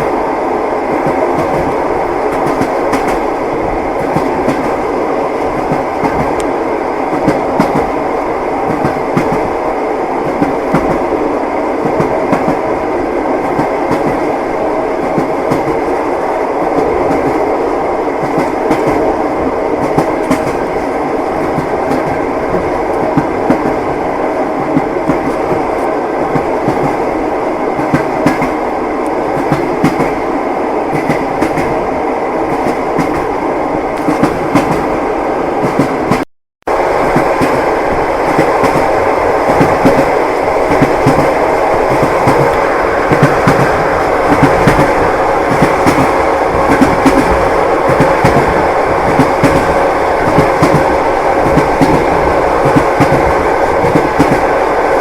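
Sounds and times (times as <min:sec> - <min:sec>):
train wheels clacking on rails: 0:00.8 - 0:09.6, 0:10.2 - 0:35.0, 0:35.6 - 0:36.2, 0:36.8 - 0:55.0.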